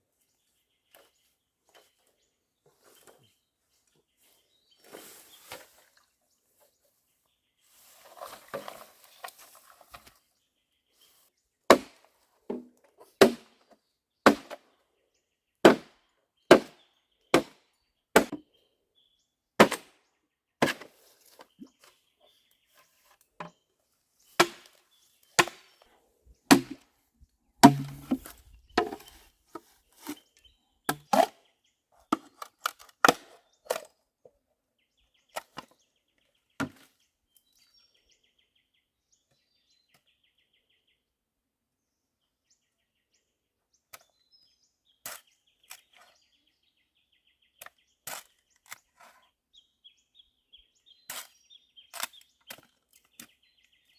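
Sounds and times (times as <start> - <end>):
blade chopping: 24.4 - 24.7, 25.4 - 25.7, 26.5 - 26.8, 27.6 - 29.1.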